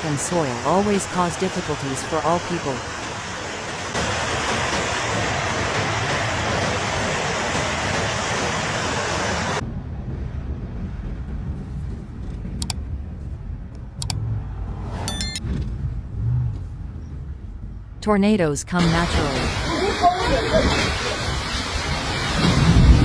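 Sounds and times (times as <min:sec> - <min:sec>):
rushing water: 0:00.0 - 0:09.6, 0:18.8 - 0:23.0
low background rumble: 0:09.5 - 0:23.0
sharp clicks: 0:12.6 - 0:12.8, 0:14.0 - 0:14.2
high-pitched beep: 0:15.1 - 0:15.4.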